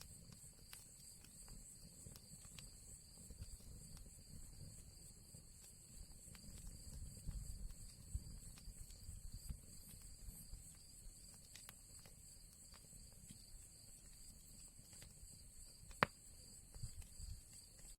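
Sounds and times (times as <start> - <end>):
fire crackling and popping: 0.0 - 17.9
low rumble of flames: 0.0 - 17.9.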